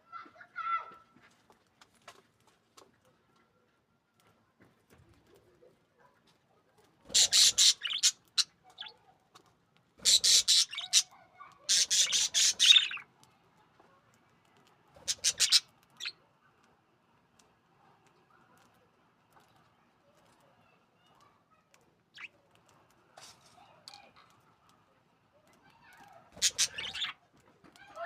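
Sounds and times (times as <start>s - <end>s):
budgerigars chattering and squawking: 7.1s - 9.0s, 10.0s - 13.0s, 15.0s - 16.1s, 26.4s - 27.2s.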